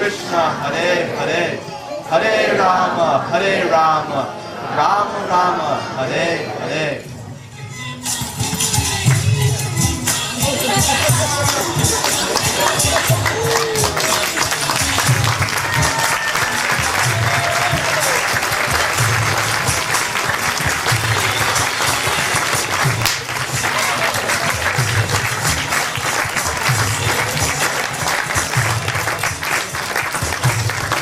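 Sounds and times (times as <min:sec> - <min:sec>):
audience applauding: 0:10.5 - 0:31.0.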